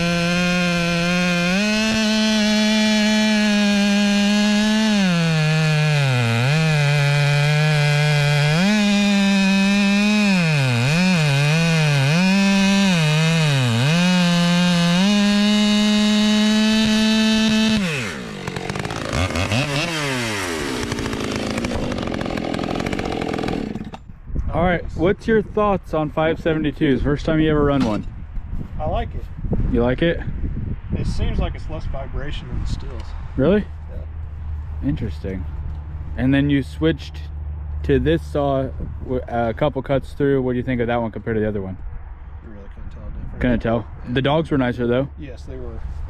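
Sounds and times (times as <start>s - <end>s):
chainsaw cutting log: 0.0s - 24.1s.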